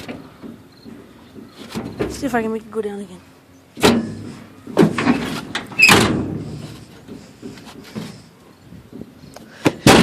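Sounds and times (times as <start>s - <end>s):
metal trailer clanking: 3.8s - 8.2s.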